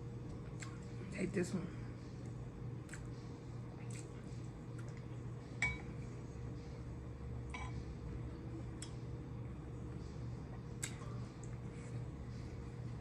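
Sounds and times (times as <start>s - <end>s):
steady low hum: 0.0s - 13.0s
utensil clinking against a dish: 5.6s - 5.9s, 7.5s - 7.8s.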